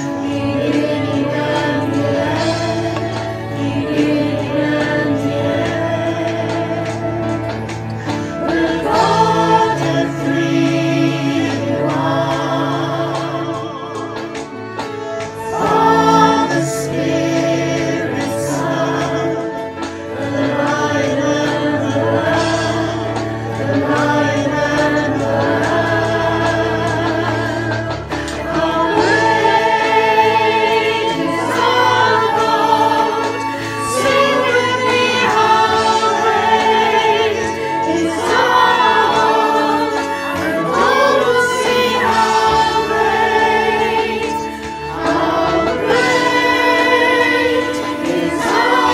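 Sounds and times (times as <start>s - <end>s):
choir singing with vibrato: 0.0s - 48.9s.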